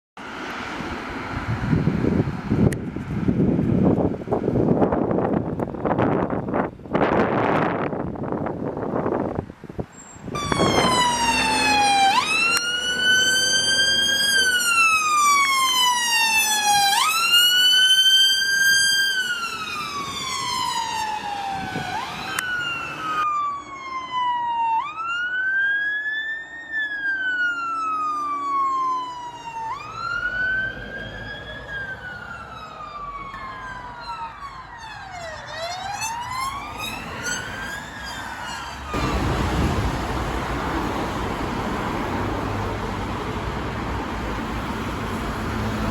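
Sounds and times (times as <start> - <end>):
siren wailing: 10.3 - 39.4
police siren quick sweep: 10.3 - 40.0.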